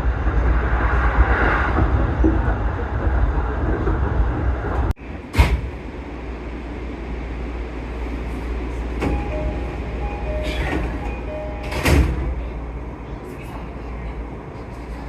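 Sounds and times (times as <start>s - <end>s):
electric train rumble: 0.0s - 15.0s
two-note electronic door chime: 9.0s - 12.3s.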